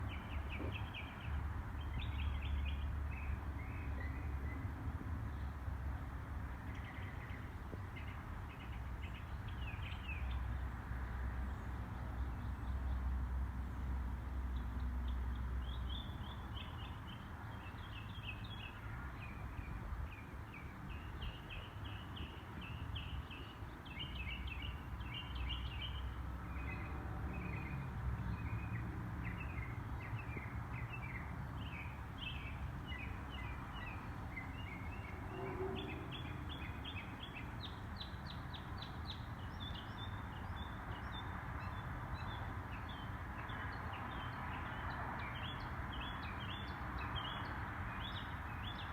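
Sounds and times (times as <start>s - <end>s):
birds chirping and trilling: 27.5s - 41.2s.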